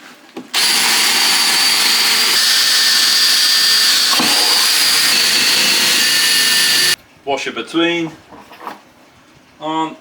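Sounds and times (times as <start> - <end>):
power drill boring through timber: 0.6 - 7.0.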